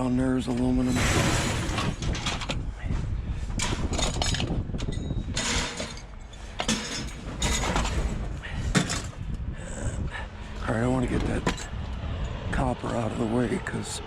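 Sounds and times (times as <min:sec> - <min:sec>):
scrap metal clinking: 0:03.6 - 0:09.2.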